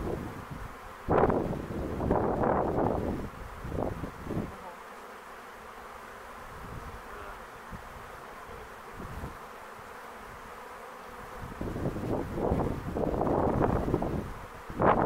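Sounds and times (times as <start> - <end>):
wind on microphone: 0.0 - 4.6, 6.5 - 7.0, 8.9 - 9.4, 11.2 - 15.0
bee swarm buzzing: 0.0 - 15.0.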